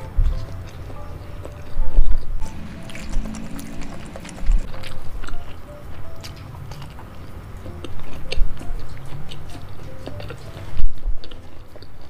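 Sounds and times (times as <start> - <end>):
wet chewing clicks and smacks: 0.0 - 12.0.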